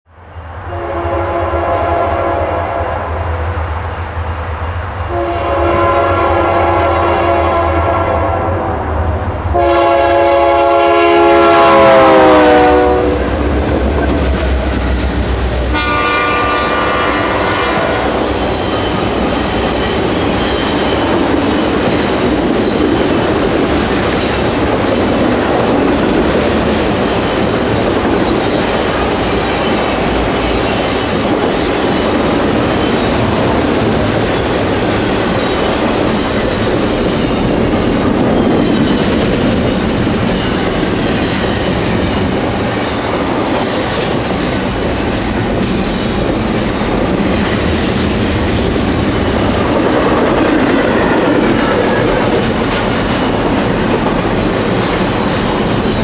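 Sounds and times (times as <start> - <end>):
locomotive air horn blasts: 0.7 - 3.3, 5.1 - 8.8, 9.5 - 13.4, 15.7 - 18.4
freight cars clickety-clack: 13.0 - 56.0.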